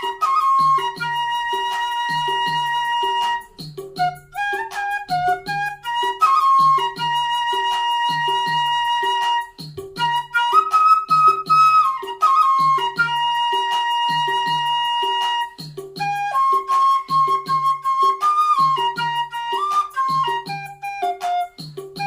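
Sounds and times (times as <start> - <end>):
flute melody: 0.0 - 22.0
steady drum beat: 0.0 - 22.0.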